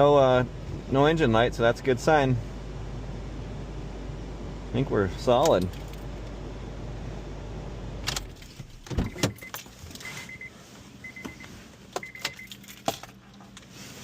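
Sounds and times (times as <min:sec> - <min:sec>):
clicks and knocks in car cabin: 0:08.0 - 0:10.0
car warning chime beeping: 0:09.0 - 0:12.6.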